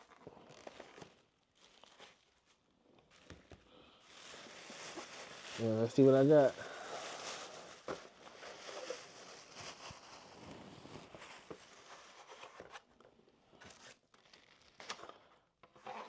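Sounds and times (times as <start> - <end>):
food packaging rustling: 0.0 - 13.0
small crackles and taps: 3.2 - 3.7.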